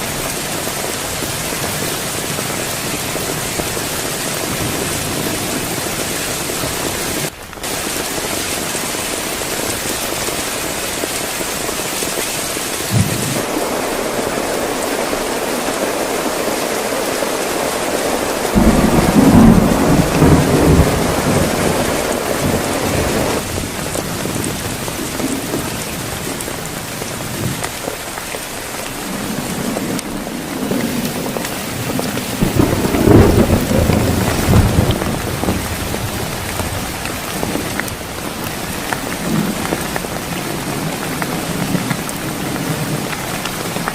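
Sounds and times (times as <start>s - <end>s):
heavy rain falling: 0.0s - 43.9s
thunder rumbling: 12.8s - 43.9s.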